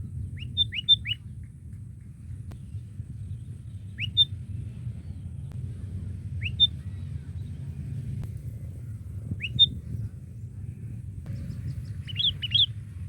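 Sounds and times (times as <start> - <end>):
low steady rumble: 0.0 - 13.0
bulbul calling: 0.1 - 1.3, 3.9 - 4.4, 6.4 - 7.0, 9.3 - 9.8, 11.3 - 12.9.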